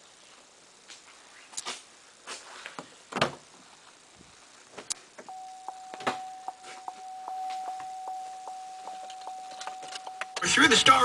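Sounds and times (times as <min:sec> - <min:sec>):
regular ticking: 0:05.3 - 0:11.0
steady electronic tone: 0:05.3 - 0:11.0.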